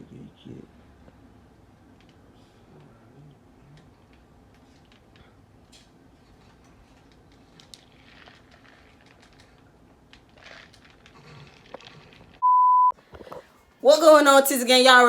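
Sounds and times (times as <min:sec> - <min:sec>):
faint clicks and rustling: 0:03.7 - 0:12.4
electronic beep: 0:12.4 - 0:12.9.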